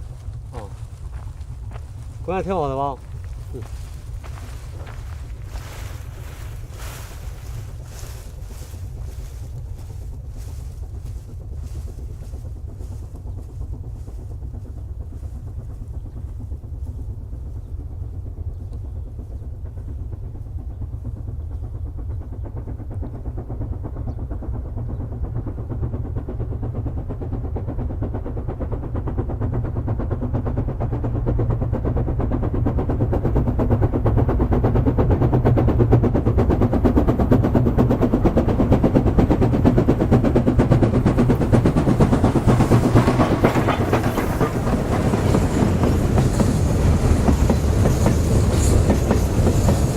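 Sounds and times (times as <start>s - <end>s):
steam train rumbling: 0.0s - 49.9s.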